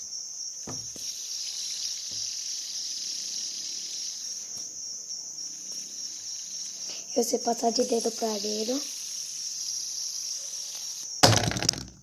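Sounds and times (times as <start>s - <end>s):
soft knocks: 0.6s - 1.0s
high-pitched chirring: 5.4s - 11.1s.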